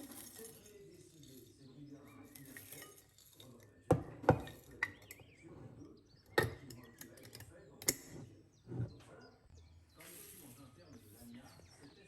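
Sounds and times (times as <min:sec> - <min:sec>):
kitchenware clinking: 0:00.0 - 0:09.0.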